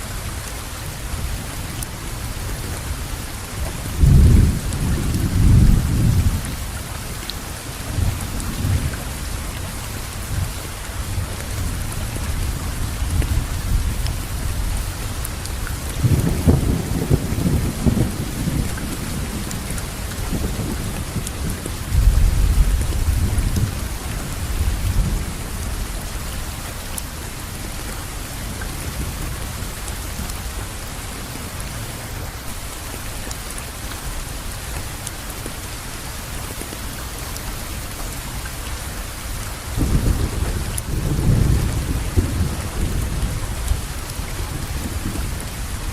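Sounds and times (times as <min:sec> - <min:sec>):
steady rainfall: 0:00.0 - 0:45.9
thunder rumbling: 0:04.0 - 0:06.6, 0:16.0 - 0:26.0, 0:39.7 - 0:45.9.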